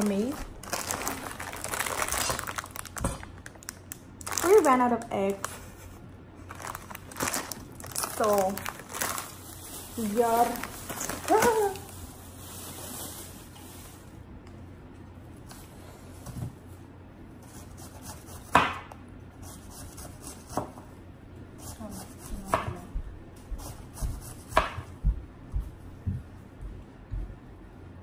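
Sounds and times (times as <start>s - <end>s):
knife chopping on cutting board: 17.8s - 18.9s, 19.5s - 20.8s, 21.9s - 22.9s, 23.6s - 25.1s.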